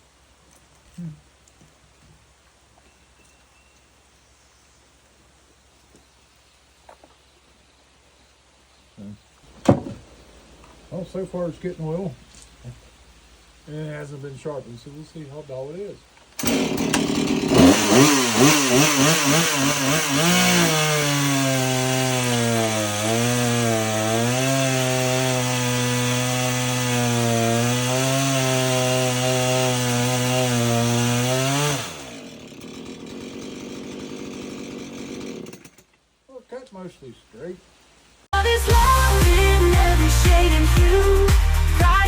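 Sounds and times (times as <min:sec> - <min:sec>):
chainsaw cutting wood: 0:16.4 - 0:36.0.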